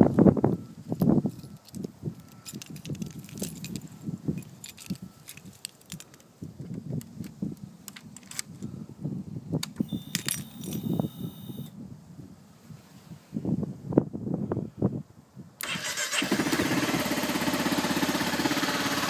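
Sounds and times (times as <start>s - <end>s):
keys jangling and clicking: 1.2s - 6.3s, 7.9s - 8.6s, 9.9s - 11.1s
steady high whine: 9.8s - 11.8s.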